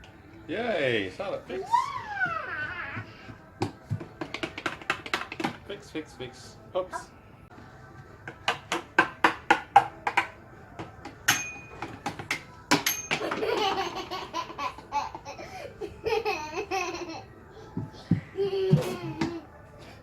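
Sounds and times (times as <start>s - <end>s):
young child laughing: 13.3s - 17.2s, 18.2s - 19.5s.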